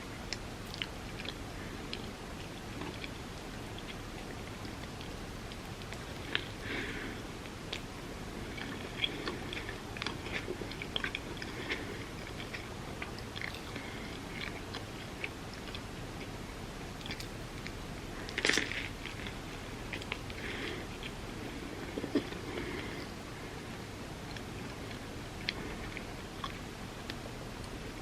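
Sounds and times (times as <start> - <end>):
chewing crunchy toast: 0.2 - 28.0.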